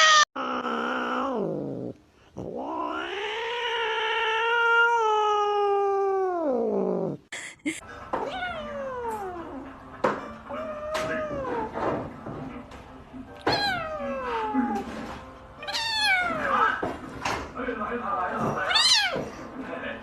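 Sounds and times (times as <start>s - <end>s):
cat yowling: 0.0s - 7.2s, 8.2s - 9.7s, 10.5s - 11.8s, 13.4s - 15.0s, 15.6s - 16.8s, 18.6s - 19.3s.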